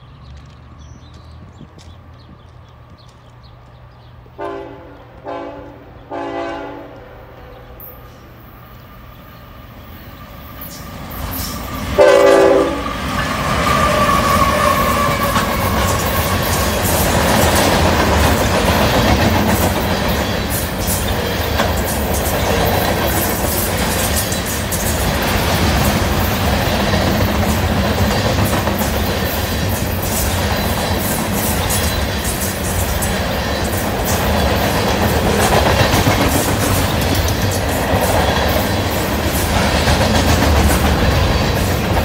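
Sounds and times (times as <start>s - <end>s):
train rumble: 0.0s - 42.0s
locomotive horn blasts: 4.4s - 7.1s, 12.0s - 12.9s.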